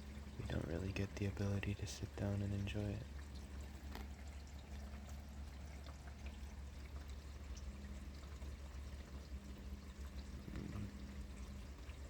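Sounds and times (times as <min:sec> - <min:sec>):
water running into a gutter: 0:00.0 - 0:12.0.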